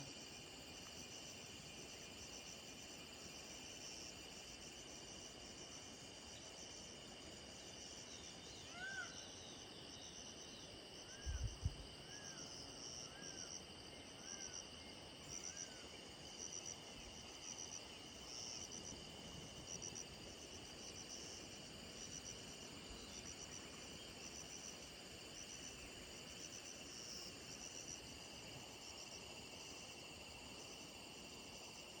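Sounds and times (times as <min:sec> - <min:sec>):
cricket chirping: 0:00.0 - 0:32.0
high insect whine: 0:00.0 - 0:32.0.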